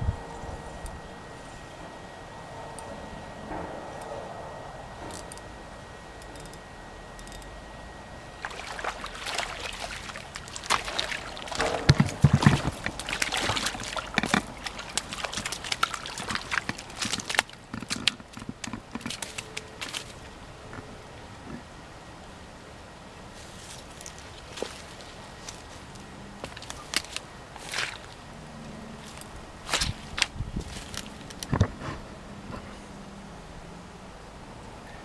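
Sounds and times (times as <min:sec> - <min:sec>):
steady background hiss: 0:00.0 - 0:35.0
water splashing and sloshing: 0:08.4 - 0:21.7, 0:23.4 - 0:32.7.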